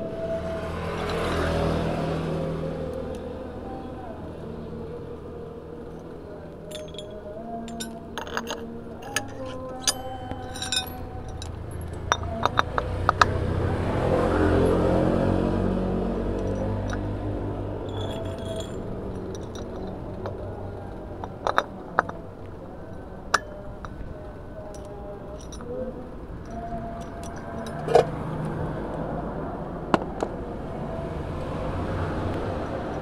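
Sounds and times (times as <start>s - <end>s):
hard objects clinking together: 5.8s - 13.4s, 16.3s - 25.8s, 26.4s - 28.1s.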